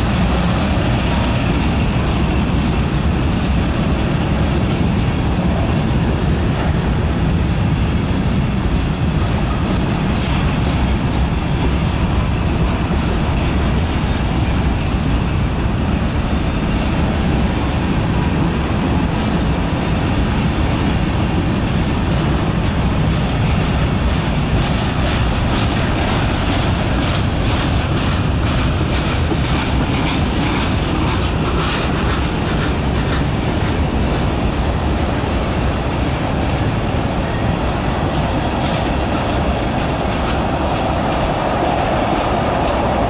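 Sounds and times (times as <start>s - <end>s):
freight cars rumbling: 0.0s - 43.0s
wheels clicking over rail joints: 0.0s - 43.0s.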